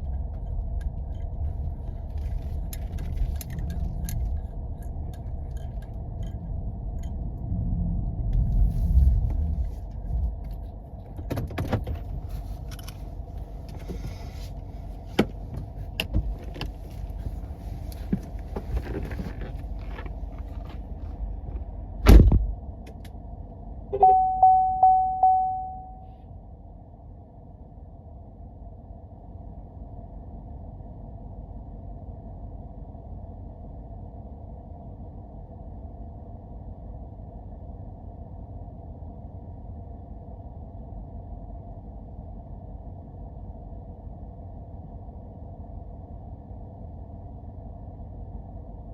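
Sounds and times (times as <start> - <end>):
vehicle rumble from inside cab: 0.0 - 48.9
loud thump: 22.0 - 22.5
electronic chime dings: 24.0 - 26.1.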